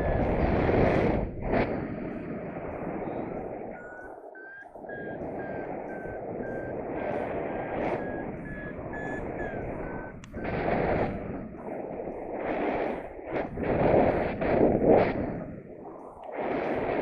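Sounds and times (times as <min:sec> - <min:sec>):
wind rushing on microphone: 0:00.0 - 0:17.0
variometer beeping: 0:03.1 - 0:11.6
click: 0:10.2 - 0:10.4.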